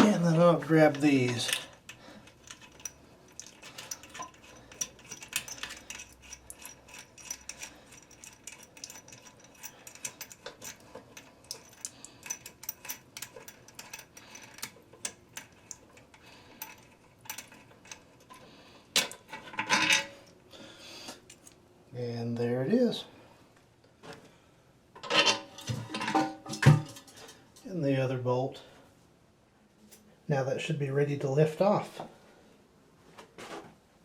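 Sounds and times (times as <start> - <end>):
metal clatter: 0.0 - 18.4.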